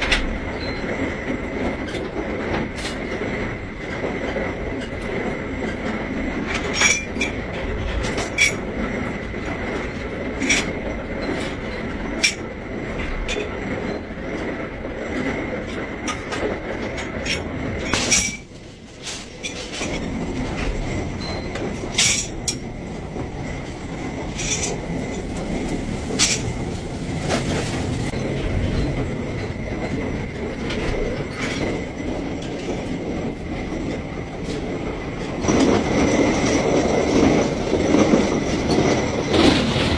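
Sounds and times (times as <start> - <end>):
machinery rumbling: 17.0 - 39.9.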